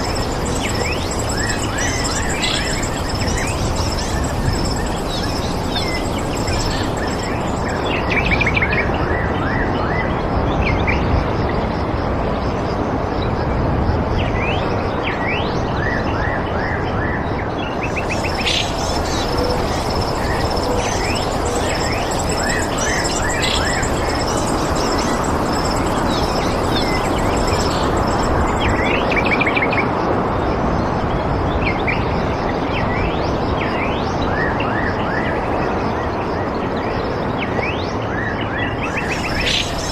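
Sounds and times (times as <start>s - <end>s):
birds chirping: 0.0s - 8.1s, 17.9s - 29.3s, 38.9s - 39.9s
high fast bird trill: 0.0s - 8.3s, 17.9s - 29.4s, 38.9s - 39.9s
steady rushing noise: 0.0s - 9.0s, 17.7s - 32.5s, 38.7s - 39.9s.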